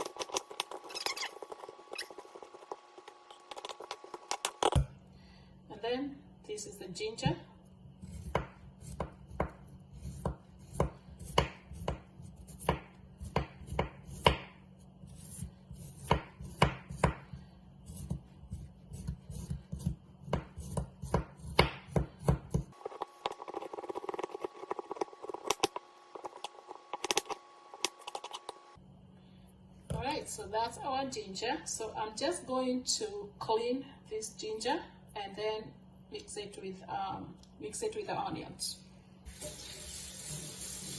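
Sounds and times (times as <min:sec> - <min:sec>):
steady hum: 0:00.0 - 0:39.3
knife chopping on cutting board: 0:08.1 - 0:14.6, 0:15.2 - 0:28.6.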